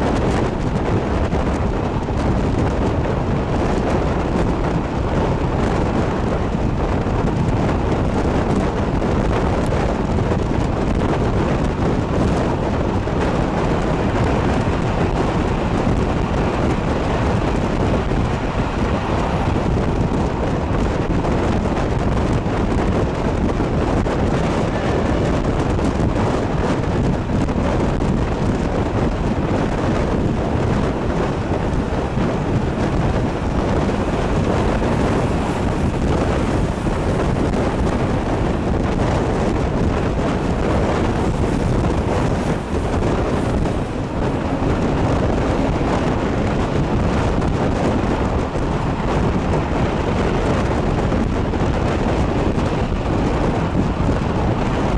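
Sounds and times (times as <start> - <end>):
moving train rumble: 0.0 - 54.9
wind buffeting microphone: 0.0 - 54.9.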